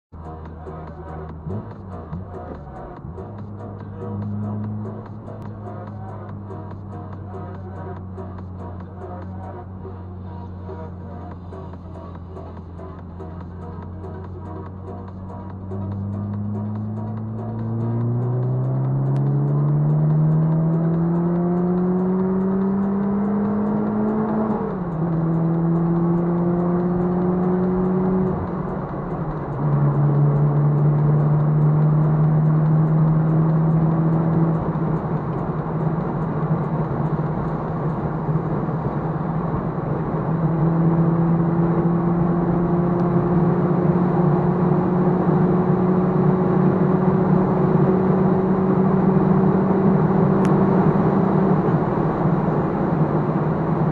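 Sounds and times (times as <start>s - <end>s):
car engine accelerating: 0.1s - 53.9s
wind and tyre noise: 14.7s - 53.9s.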